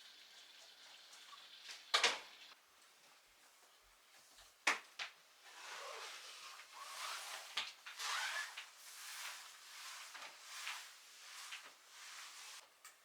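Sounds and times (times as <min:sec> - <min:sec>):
rustling and rubbing: 0:05.5 - 0:12.6.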